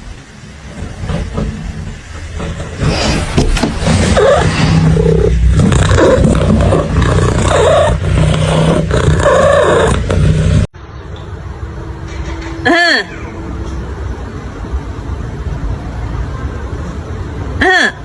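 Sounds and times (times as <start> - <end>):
low steady hum: 0.0 - 17.8
animal calling loudly: 1.8 - 10.0.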